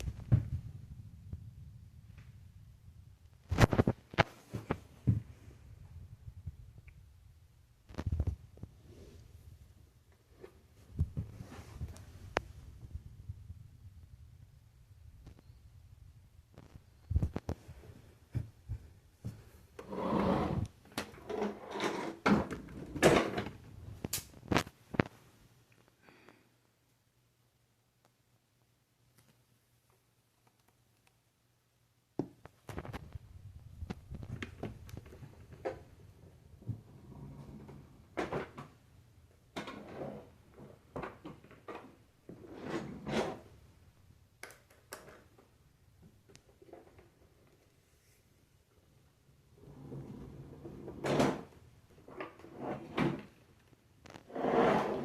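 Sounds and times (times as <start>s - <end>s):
rustling and scraping: 3.4s - 5.8s, 10.2s - 13.0s, 32.5s - 36.0s.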